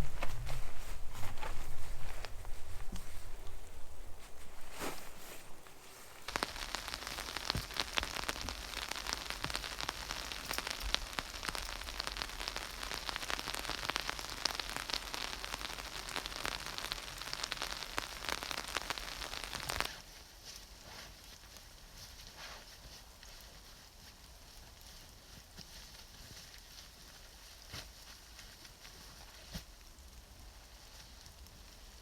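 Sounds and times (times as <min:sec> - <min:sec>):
rain pattering: 0:00.0 - 0:20.0.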